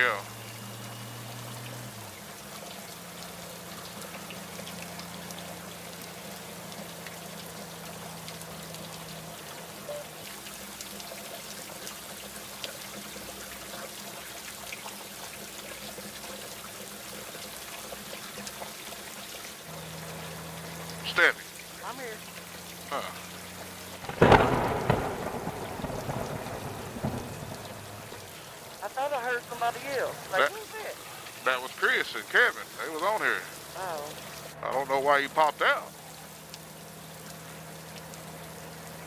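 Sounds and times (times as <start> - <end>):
motorcycle riding noise: 0.0 - 10.1
rain rushing: 0.0 - 39.0.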